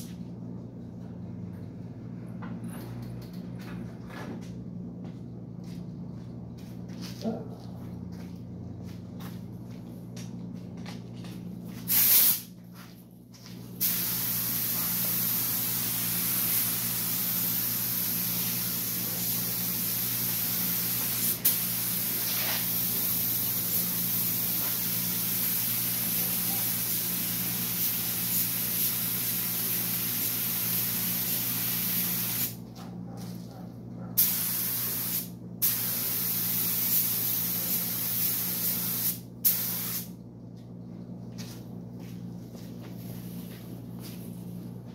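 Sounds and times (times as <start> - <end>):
paint spray gun hissing: 11.9 - 12.5, 13.8 - 32.6, 34.2 - 40.1
spray gun trigger blasts: 11.9 - 12.5, 34.2 - 40.1.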